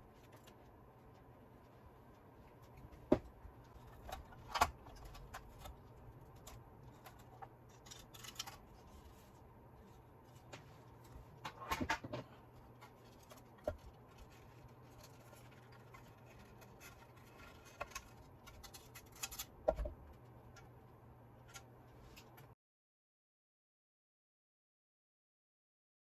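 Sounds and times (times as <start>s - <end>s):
faint low hum: 0.0s - 22.6s
small parts clicking and tapping: 1.7s - 9.3s, 12.6s - 20.8s.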